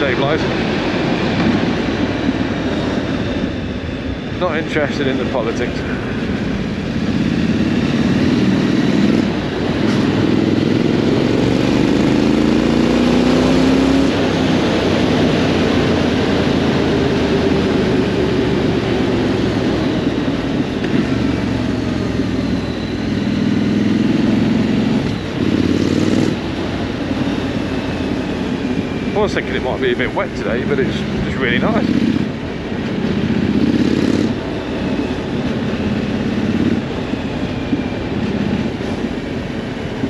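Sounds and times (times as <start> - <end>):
wind noise: 0.0 - 12.0
motorcycle engine accelerating: 0.0 - 40.0.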